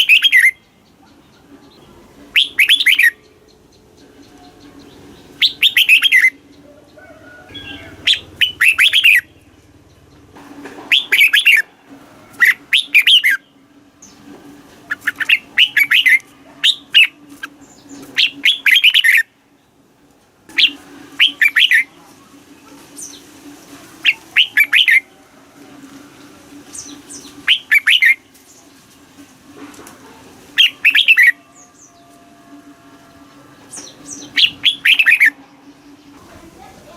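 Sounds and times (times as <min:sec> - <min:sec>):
bird singing whistled phrases: 0:00.0 - 0:00.6, 0:02.3 - 0:03.2, 0:05.4 - 0:06.4, 0:07.5 - 0:09.3, 0:12.4 - 0:13.4, 0:14.9 - 0:17.2, 0:18.2 - 0:19.3, 0:20.6 - 0:21.9, 0:24.0 - 0:25.1, 0:26.8 - 0:28.2, 0:30.6 - 0:32.0, 0:33.8 - 0:35.4.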